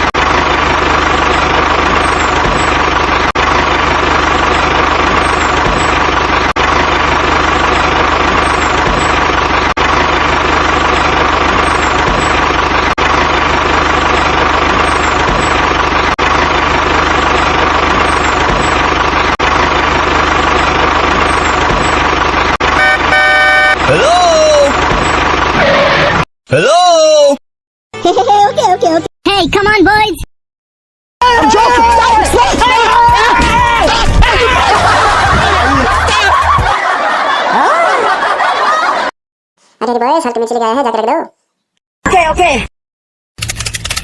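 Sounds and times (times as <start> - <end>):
tractor engine idling: 0.0 - 26.0, 31.2 - 39.1.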